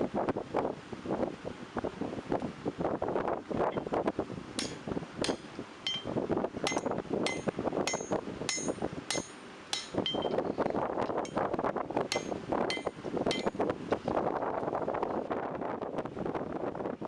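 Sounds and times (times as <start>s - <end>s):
steady rushing noise: 0.0s - 17.0s
hammer ringing on anvil: 4.6s - 6.1s, 6.7s - 10.4s, 12.1s - 13.5s.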